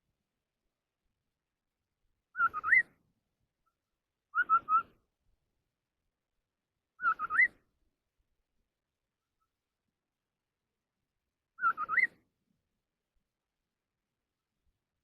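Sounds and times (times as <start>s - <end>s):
songbird whistling phrases: 2.3s - 3.0s, 4.3s - 5.0s, 7.0s - 7.6s, 11.6s - 12.2s.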